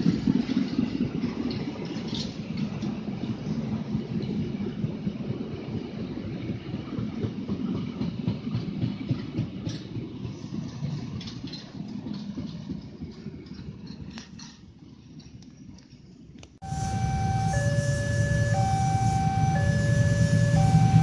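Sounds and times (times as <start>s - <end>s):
wheels clicking over rail joints: 0.0s - 5.0s, 6.7s - 16.4s
train rumble: 0.0s - 21.0s.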